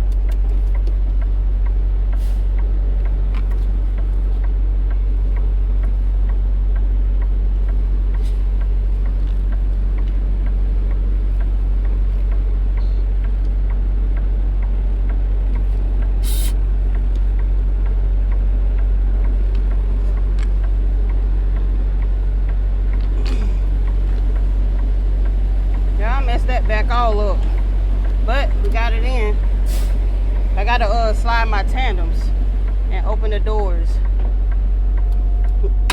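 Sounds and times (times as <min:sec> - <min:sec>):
diesel truck engine running: 0:00.0 - 0:35.9
brief air hiss: 0:16.2 - 0:16.6, 0:29.7 - 0:30.0.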